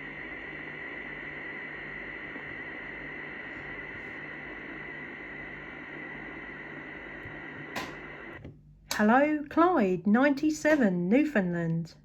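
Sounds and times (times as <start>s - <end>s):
radio static hiss: 0.0s - 8.4s.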